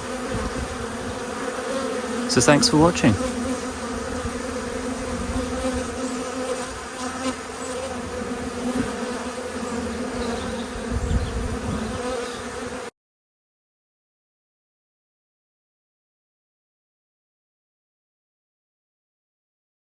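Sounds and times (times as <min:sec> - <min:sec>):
honeybees buzzing: 0:00.0 - 0:12.9.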